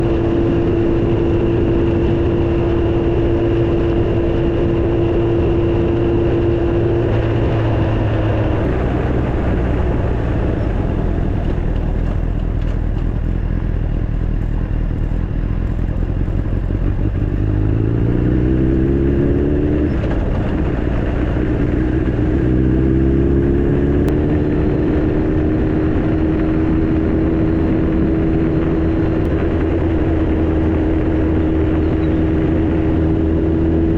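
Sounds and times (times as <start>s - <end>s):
motorcycle engine accelerating: 0.0s - 33.9s
wind noise on microphone: 0.0s - 33.9s.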